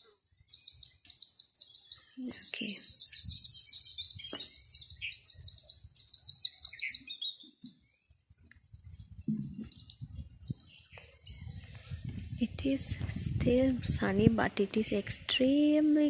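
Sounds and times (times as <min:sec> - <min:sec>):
bird chirping rapidly: 0:00.0 - 0:08.1, 0:09.6 - 0:11.7.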